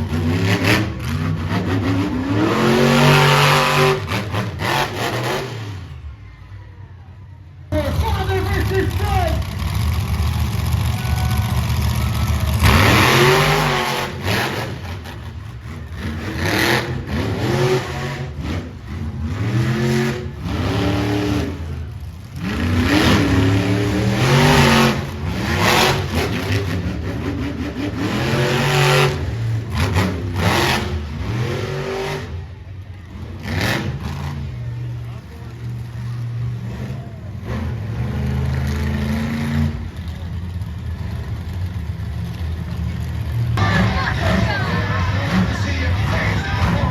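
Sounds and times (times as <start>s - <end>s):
monster truck engine revving: 0.0s - 6.3s, 7.7s - 46.9s
loud rush of noise: 43.6s - 46.9s.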